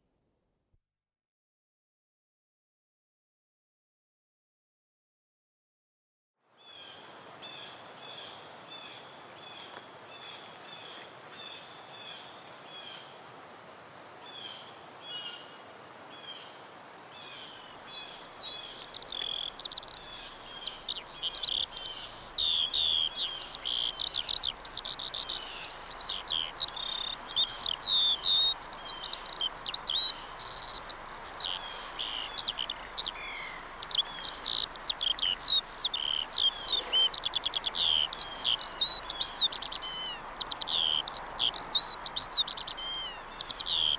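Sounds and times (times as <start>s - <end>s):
birds chirping and singing: 18.0s - 43.9s.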